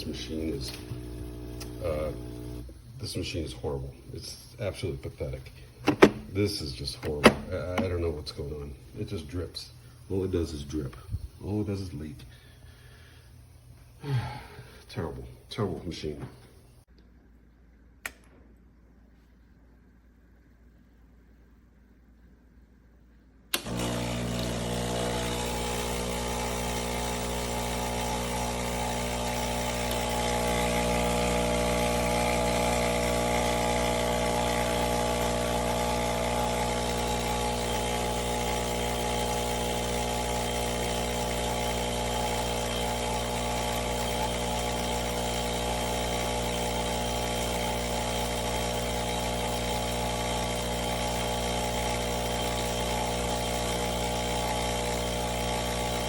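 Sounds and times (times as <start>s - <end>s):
espresso machine pump buzzing: 0.0s - 2.9s, 5.8s - 6.4s, 23.5s - 56.0s.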